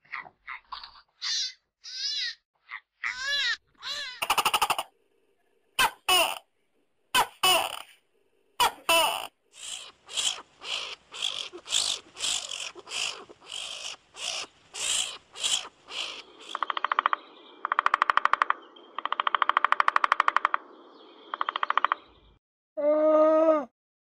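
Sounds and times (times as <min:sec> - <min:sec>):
short harsh bird calls: 0:08.6 - 0:16.7
woodpecker drumming on wood: 0:09.6 - 0:20.7, 0:21.3 - 0:22.1
bird chirps: 0:09.6 - 0:22.4.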